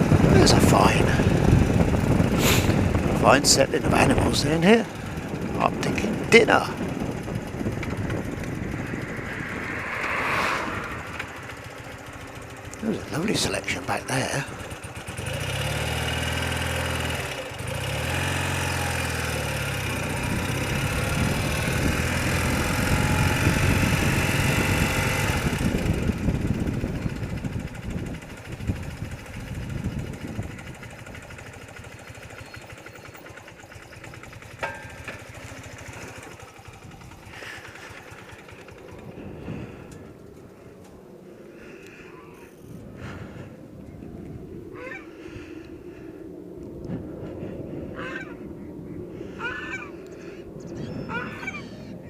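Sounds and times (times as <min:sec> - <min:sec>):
motorcycle engine running: 0:00.0 - 0:41.2.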